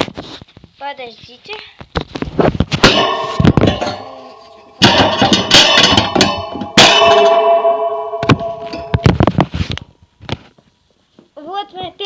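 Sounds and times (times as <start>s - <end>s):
metallic knocks with ringing bars: 2.8s - 9.4s
wire cage rattling and clanging: 2.8s - 9.5s.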